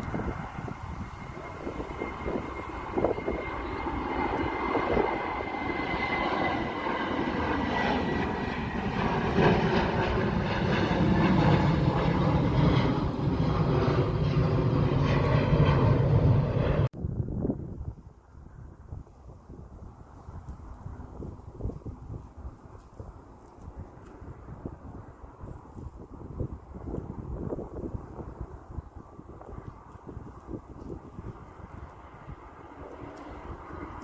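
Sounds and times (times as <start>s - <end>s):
high jet whine: 0.0s - 16.9s
airliner engines: 0.0s - 34.0s.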